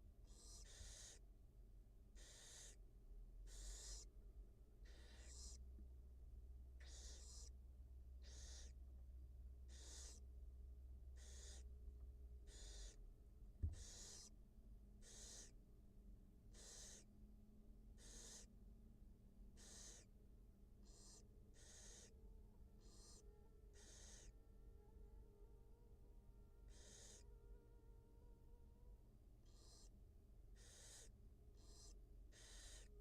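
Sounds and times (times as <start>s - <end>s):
barn owl hissing calls: 0.2s - 1.2s, 2.1s - 2.8s, 3.5s - 4.1s, 4.8s - 5.6s, 6.8s - 7.6s, 8.2s - 8.8s, 9.6s - 10.3s, 11.2s - 11.7s, 12.5s - 13.0s, 13.7s - 14.4s, 15.0s - 15.6s, 16.5s - 17.1s, 17.9s - 18.6s, 19.5s - 20.2s, 20.8s - 25.0s, 26.6s - 28.6s, 29.4s - 33.0s
dull thump: 13.6s - 13.8s.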